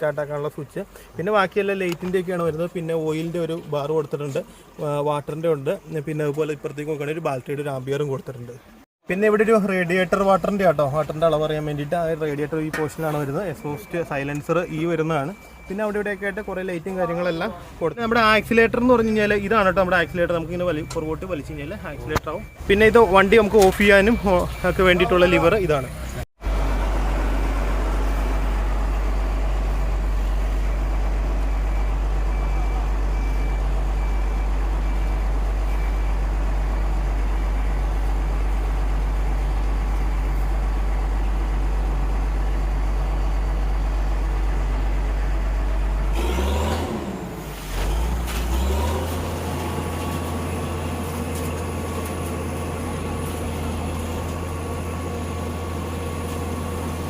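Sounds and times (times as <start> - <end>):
diesel engine droning: 9.2 - 57.0.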